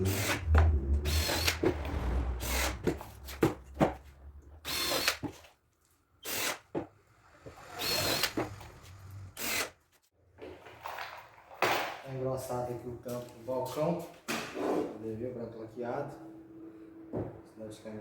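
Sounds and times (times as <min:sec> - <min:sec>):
power drill driving screws: 0:00.0 - 0:01.7, 0:02.4 - 0:03.5, 0:04.6 - 0:05.4, 0:06.2 - 0:09.8.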